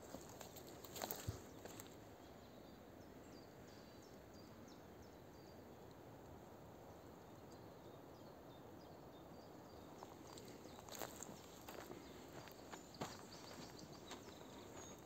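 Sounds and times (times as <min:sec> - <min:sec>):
low steady hiss: 0:00.0 - 0:15.0
small bird chirping: 0:09.8 - 0:15.0.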